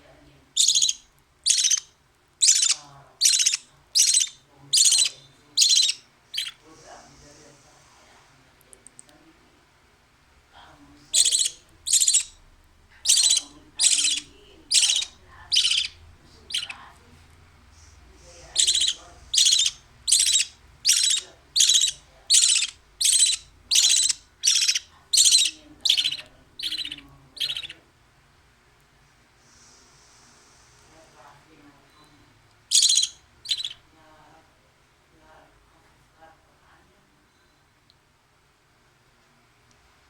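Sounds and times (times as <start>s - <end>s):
baby bird begging calls: 0.6s - 6.6s, 11.1s - 12.4s, 13.0s - 16.8s, 18.3s - 27.8s, 32.7s - 33.9s.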